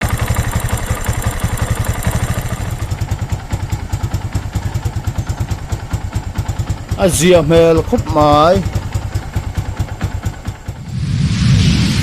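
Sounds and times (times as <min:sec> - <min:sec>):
motorcycle engine idling roughly: 0:00.0 - 0:10.8.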